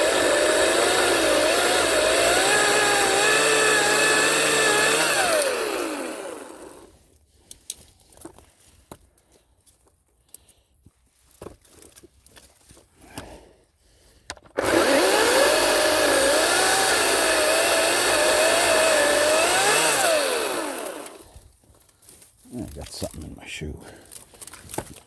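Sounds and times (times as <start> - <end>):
battery chainsaw cutting wood: 0.0 - 6.9, 14.6 - 21.4.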